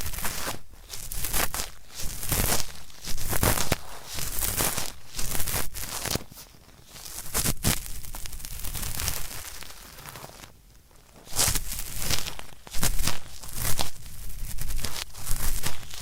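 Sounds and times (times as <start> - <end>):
cotton swab scratching in ear: 0.0 - 10.4, 11.2 - 16.0.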